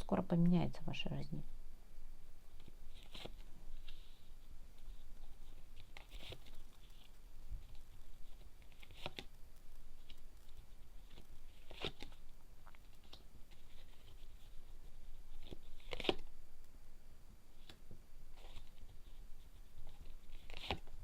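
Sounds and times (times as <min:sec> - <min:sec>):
faint room hiss: 0:00.0 - 0:21.0
cards shuffling: 0:02.6 - 0:04.1, 0:04.8 - 0:16.3, 0:19.8 - 0:21.0.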